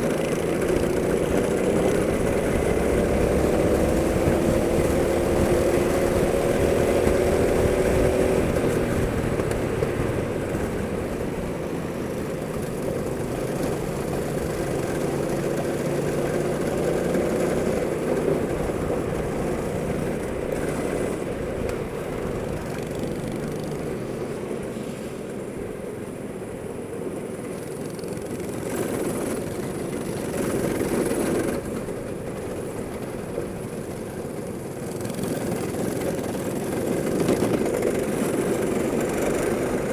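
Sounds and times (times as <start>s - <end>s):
go-kart engine running hard: 0.0s - 39.9s.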